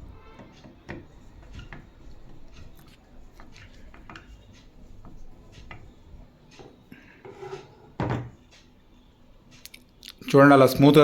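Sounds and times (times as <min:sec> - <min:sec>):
light scraping: 0:07.2 - 0:08.0.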